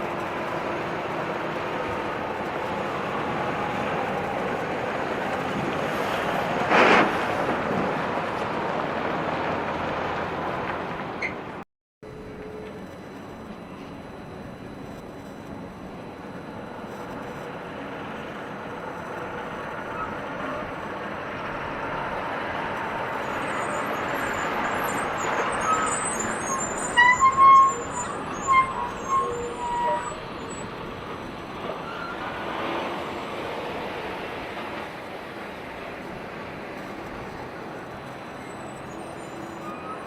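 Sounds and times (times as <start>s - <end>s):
heavy truck traffic: 0.0s - 40.0s
loud high-pitched tones: 23.1s - 30.7s.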